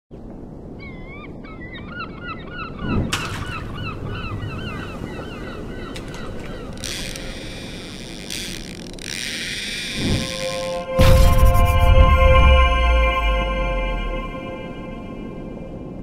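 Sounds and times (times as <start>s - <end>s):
rush of wind or water: 0.1s - 10.9s
birds honking: 2.6s - 11.0s.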